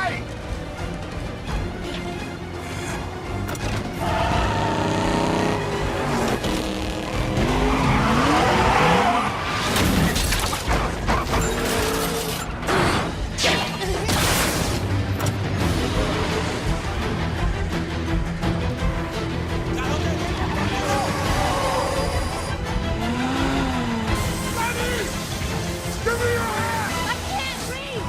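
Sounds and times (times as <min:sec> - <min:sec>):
dramatic music: 0:00.0 - 0:28.0
tyres skidding: 0:00.3 - 0:13.4
car engines revving: 0:02.3 - 0:13.4, 0:14.5 - 0:27.8.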